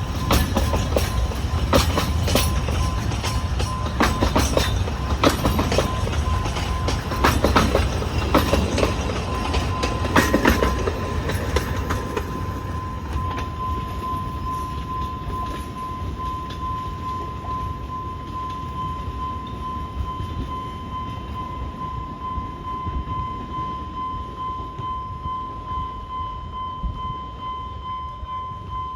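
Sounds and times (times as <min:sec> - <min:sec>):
train wheels clacking over rail joints: 0:00.0 - 0:14.2
steady high tone: 0:00.0 - 0:28.9.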